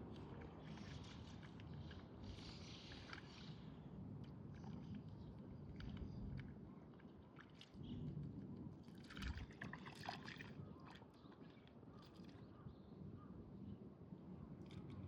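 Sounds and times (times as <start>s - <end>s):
water splashing and trickling: 0.1s - 3.7s, 8.8s - 12.5s.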